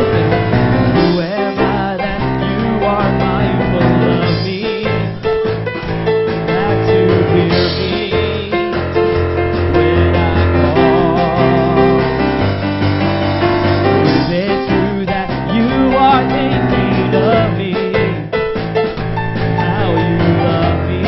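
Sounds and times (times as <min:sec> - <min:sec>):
bass line: 0:00.0 - 0:21.0
keyboard piano: 0:00.0 - 0:21.0.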